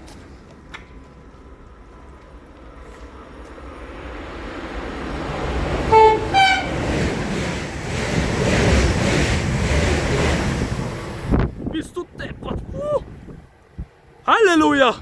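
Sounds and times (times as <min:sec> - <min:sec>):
rumble of passing train: 0:00.0 - 0:14.3
locomotive horn blasts: 0:05.8 - 0:07.0.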